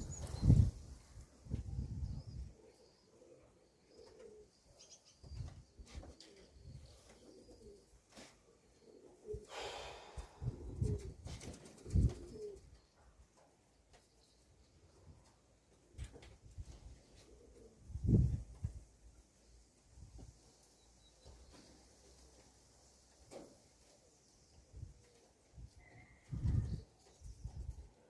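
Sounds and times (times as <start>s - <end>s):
pigeons cooing: 2.2s - 9.6s, 10.3s - 12.9s, 17.0s - 18.2s.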